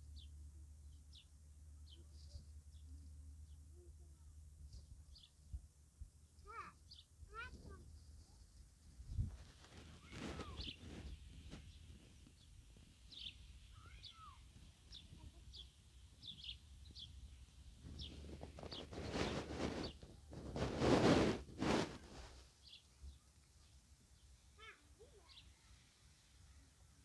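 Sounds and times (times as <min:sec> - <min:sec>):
small birds chirping: 0:04.7 - 0:05.4, 0:06.3 - 0:07.8, 0:09.5 - 0:20.2, 0:22.6 - 0:25.8.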